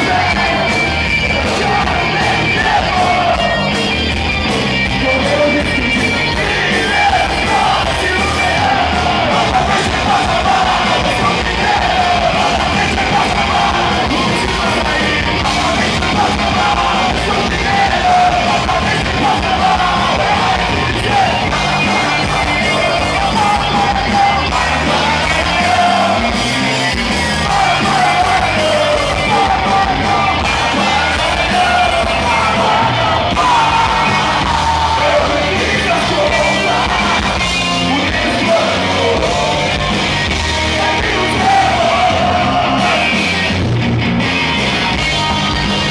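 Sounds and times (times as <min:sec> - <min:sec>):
shouted vocals: 0:00.0 - 0:43.7
punk band playing live: 0:00.0 - 0:45.9.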